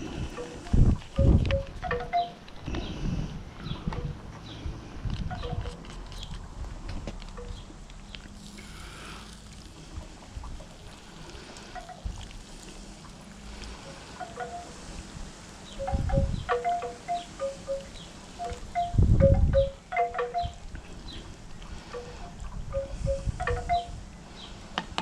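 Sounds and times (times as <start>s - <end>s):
wind rumble on microphone: 0.0s - 8.3s, 9.6s - 13.8s, 14.7s - 25.0s
wind chimes ringing: 0.3s - 2.4s, 14.2s - 14.9s, 15.7s - 20.6s, 21.9s - 24.0s.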